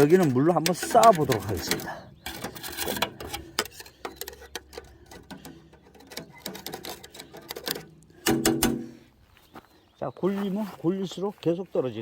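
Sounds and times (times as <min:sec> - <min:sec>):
metal stovepipe rattling and tapping: 0:00.0 - 0:09.0.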